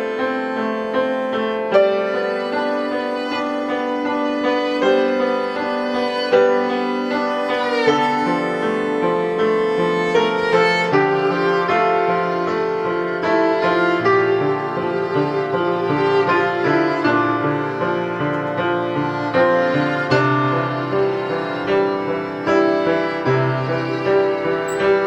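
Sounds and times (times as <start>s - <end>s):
bowed string melody: 0.0s - 25.0s
keyboard chords: 24.4s - 25.0s.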